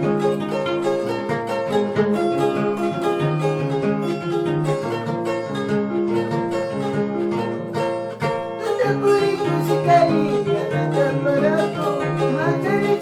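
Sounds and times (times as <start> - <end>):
harp being plucked: 0.0 - 13.0
person singing: 8.5 - 13.0.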